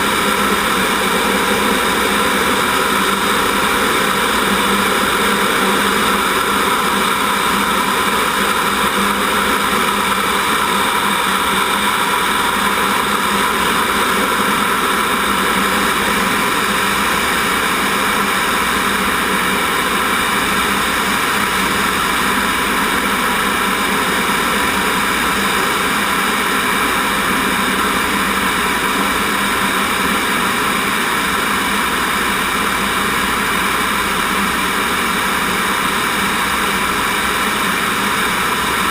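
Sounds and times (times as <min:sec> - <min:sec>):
jet engine hiss and whine: 0:00.0 - 0:38.9.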